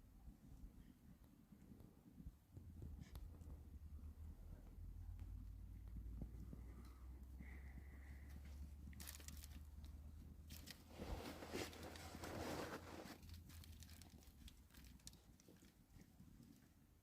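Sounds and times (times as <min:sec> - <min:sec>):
crunching and crackling: 0:08.8 - 0:16.8.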